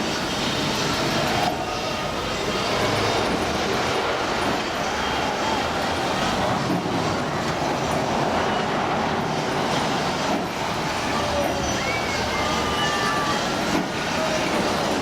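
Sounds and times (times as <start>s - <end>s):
ride mechanical rumble and hiss: 0.0s - 15.0s
high gliding squeals: 10.7s - 14.8s.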